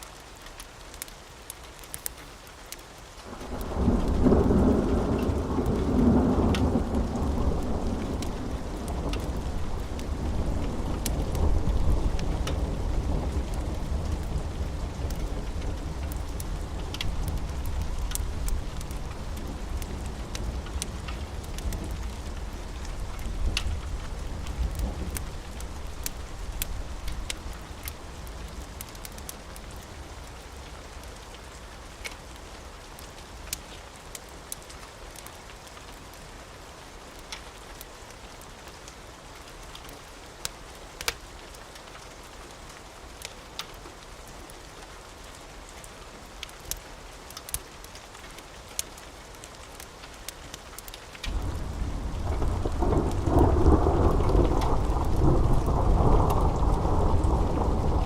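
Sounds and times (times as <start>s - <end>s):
steady rain: 0.0s - 58.0s
sharp crackles: 0.5s - 5.9s, 46.4s - 58.0s
rumble of thunder: 3.3s - 27.6s, 51.3s - 58.0s.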